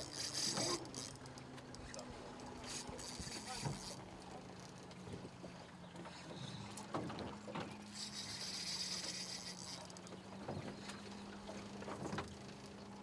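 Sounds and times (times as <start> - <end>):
high mechanical whirring: 0.0 - 2.0, 2.6 - 4.0, 7.9 - 9.9
outboard motor humming: 0.0 - 13.0.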